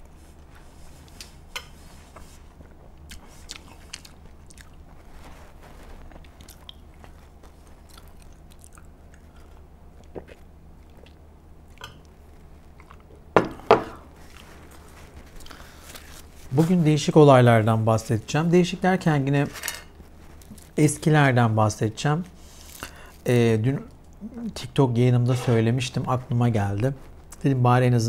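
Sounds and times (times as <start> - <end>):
person chewing food: 2.1 - 16.4.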